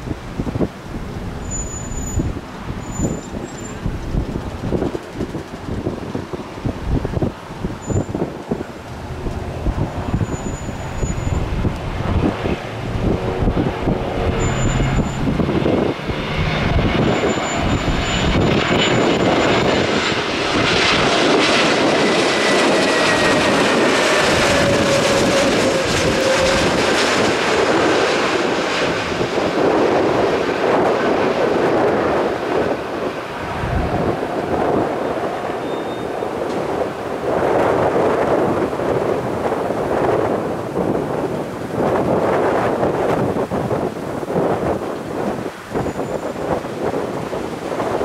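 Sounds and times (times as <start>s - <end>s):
jet airliner flying past: 0.0s - 48.0s
wind buffeting microphone: 0.0s - 48.0s.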